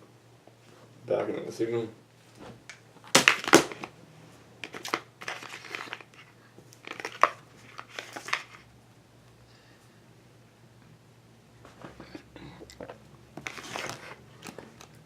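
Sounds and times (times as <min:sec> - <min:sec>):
rustling and crinkling: 0:04.6 - 0:08.7, 0:12.8 - 0:15.0.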